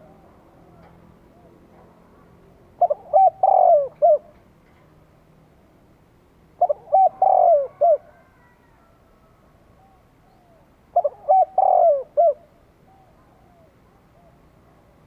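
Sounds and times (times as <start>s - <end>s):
dove cooing: 2.8s - 4.4s, 6.6s - 8.7s, 9.3s - 14.4s.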